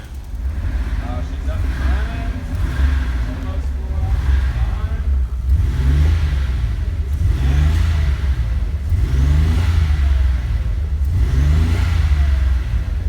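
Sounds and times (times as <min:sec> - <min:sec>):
misfiring car engine revving: 0:00.0 - 0:13.0.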